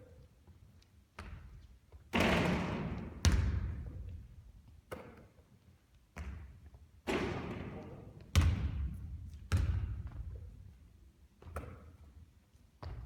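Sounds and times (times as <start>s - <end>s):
basketball thudding on hard surfaces: 7.1s - 10.2s.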